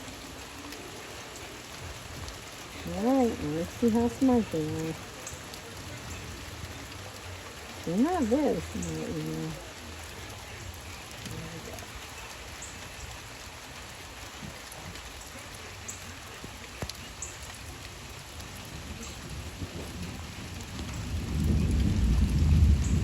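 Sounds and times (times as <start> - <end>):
sharp drips: 0.0 - 21.6
steady rain: 0.0 - 23.0
thunder rumble: 18.5 - 23.0.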